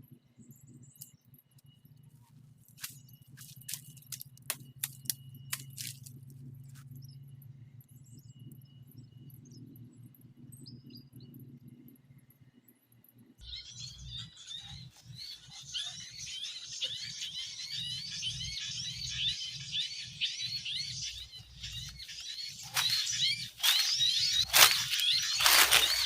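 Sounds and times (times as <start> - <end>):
busy bird chatter: 0.4 - 9.8, 13.4 - 26.0
rapid high bird chirps: 13.4 - 26.0.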